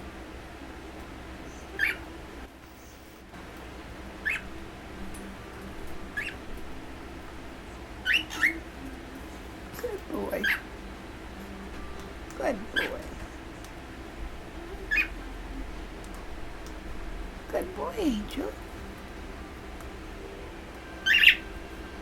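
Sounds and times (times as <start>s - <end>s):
cockatiels chirping: 1.7s - 2.1s, 4.2s - 4.6s, 6.1s - 6.5s, 8.0s - 8.6s, 14.9s - 15.2s, 21.0s - 21.4s.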